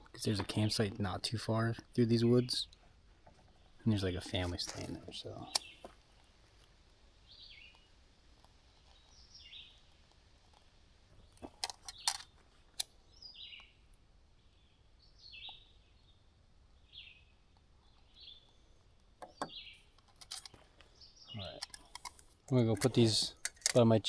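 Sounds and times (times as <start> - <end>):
sharp clicks: 11.4 - 13.0, 21.5 - 23.8.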